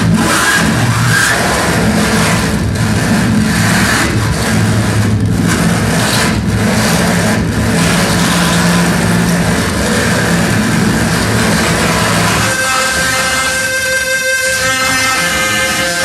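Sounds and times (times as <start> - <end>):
harsh distorted noise music: 0.0 - 16.0
low droning hum: 1.6 - 15.9.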